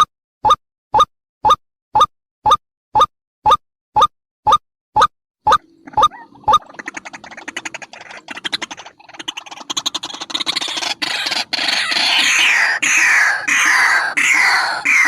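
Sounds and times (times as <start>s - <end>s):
harsh bird calls sliding down: 5.5s - 15.0s.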